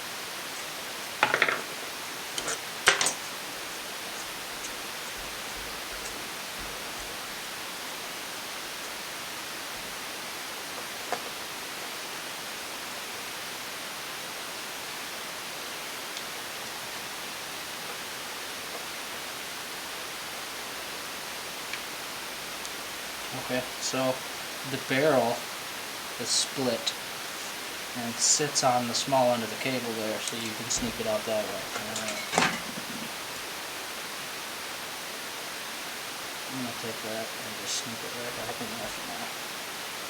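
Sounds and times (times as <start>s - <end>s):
room noise hiss: 0.0s - 40.0s
small parts clicking: 2.4s - 6.2s.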